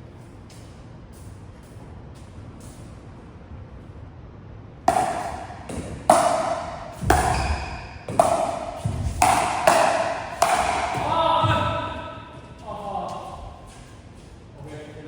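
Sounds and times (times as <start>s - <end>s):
paddles hitting plastic ball: 4.9s - 11.6s.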